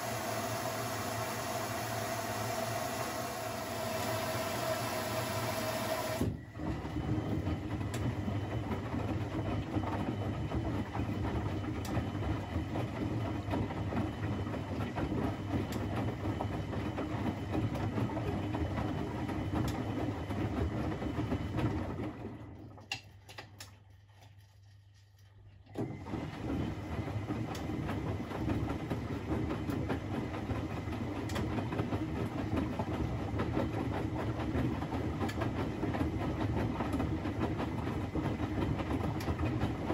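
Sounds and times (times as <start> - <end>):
washing machine drum rumbling: 25.8 - 39.9.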